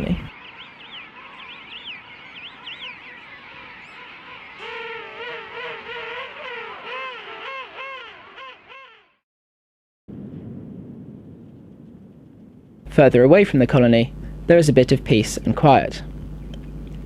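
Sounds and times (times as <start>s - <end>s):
penguins calling: 0.0s - 9.2s.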